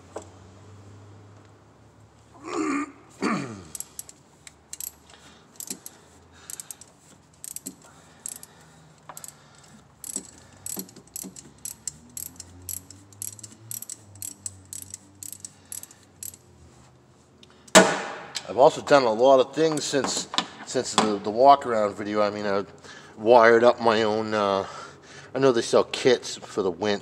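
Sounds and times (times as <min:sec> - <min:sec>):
socket ratchet clicking: 0:03.7 - 0:16.4.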